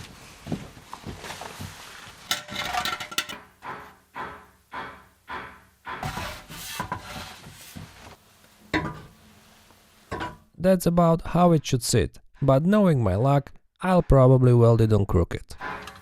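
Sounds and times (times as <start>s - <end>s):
metal scraping and clinking: 2.2s - 3.8s.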